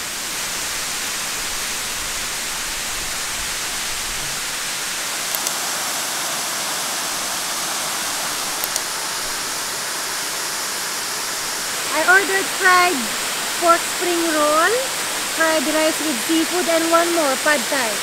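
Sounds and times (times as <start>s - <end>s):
waterfall rushing water: 0.0s - 18.0s
faint high ticks: 5.2s - 5.6s.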